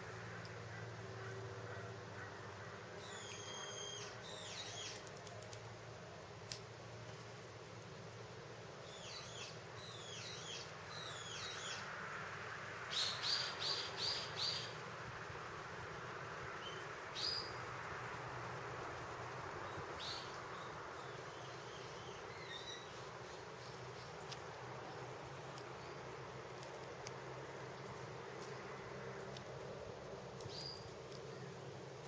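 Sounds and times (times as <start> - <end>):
steady outdoor hiss: 0.0 - 32.0
bird chirping: 3.0 - 5.1, 8.8 - 11.9, 12.9 - 14.8, 16.6 - 17.6, 19.6 - 24.5, 30.4 - 31.7.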